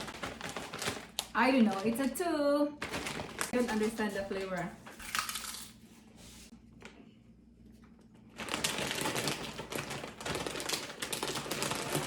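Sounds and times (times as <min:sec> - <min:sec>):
snack packaging crinkling: 0:00.0 - 0:02.1, 0:02.8 - 0:03.9, 0:05.1 - 0:05.8, 0:08.4 - 0:12.0.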